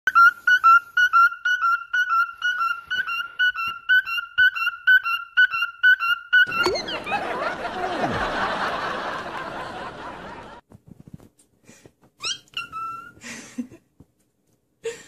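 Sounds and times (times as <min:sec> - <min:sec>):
cockatiel whistling high note: 0:00.1 - 0:07.2.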